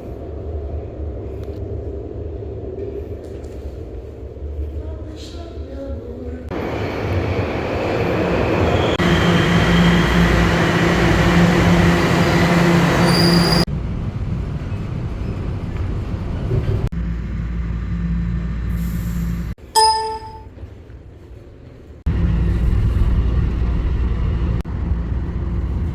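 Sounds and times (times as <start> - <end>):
train rumbling and rattling: 0.0 - 19.6, 20.6 - 25.9
high-pitched train whine: 6.5 - 13.7.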